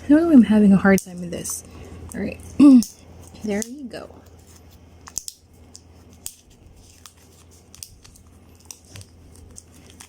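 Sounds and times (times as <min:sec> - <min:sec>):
plastic shrink wrap crackling: 0:05.2 - 0:10.0.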